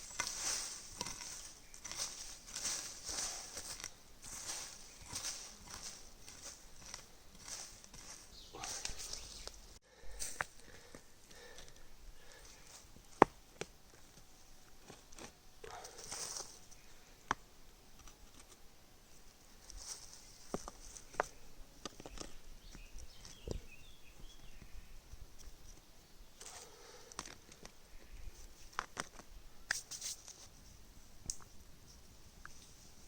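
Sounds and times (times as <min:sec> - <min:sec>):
short rustles: 0:00.0 - 0:09.6.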